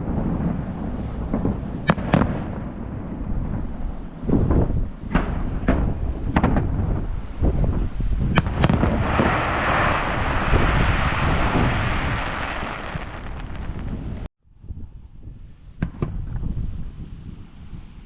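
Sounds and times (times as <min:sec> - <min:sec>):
firework crackling: 0:00.0 - 0:14.3
firework shells booming: 0:00.0 - 0:14.3
sharp firework cracks: 0:01.0 - 0:03.0, 0:08.3 - 0:14.3.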